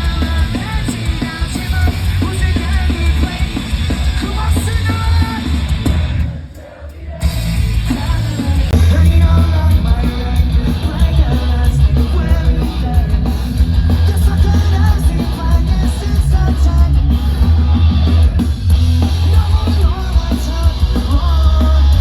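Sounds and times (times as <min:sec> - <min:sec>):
punk rock band playing: 0:00.0 - 0:22.0.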